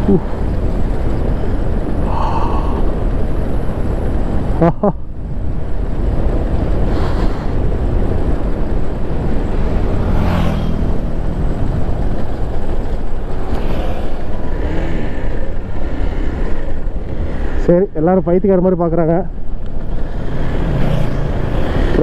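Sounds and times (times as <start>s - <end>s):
wind rushing over microphone: 0.0s - 22.0s
motorcycle engine running: 5.4s - 17.3s.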